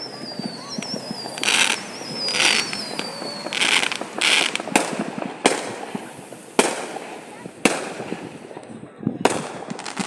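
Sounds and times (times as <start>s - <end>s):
firework whistle sliding down: 0.0s - 4.6s
firework bangs: 0.0s - 10.0s
hissing crackle bursts: 0.0s - 10.0s.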